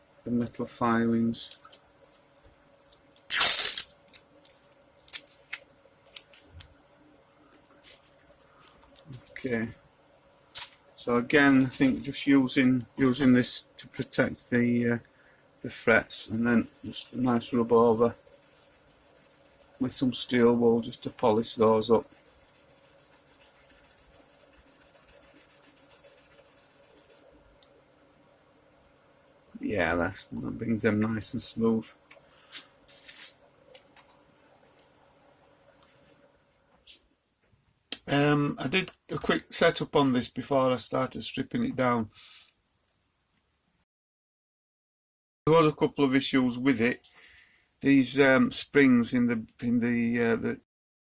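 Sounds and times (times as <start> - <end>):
tape crackling: 1.4 - 6.8, 7.5 - 9.4
masking tape ripping off roll: 3.1 - 6.7.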